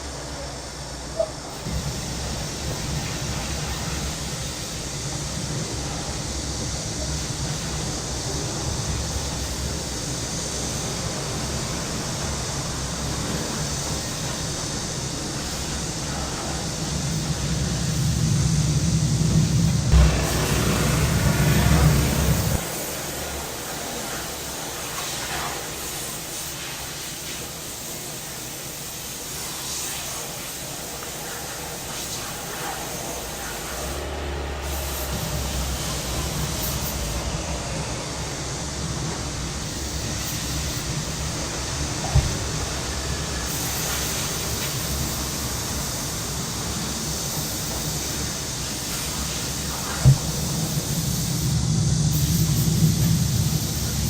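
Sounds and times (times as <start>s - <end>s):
cicadas droning: 0.0s - 54.0s
low vehicle engine rumble: 17.8s - 22.7s.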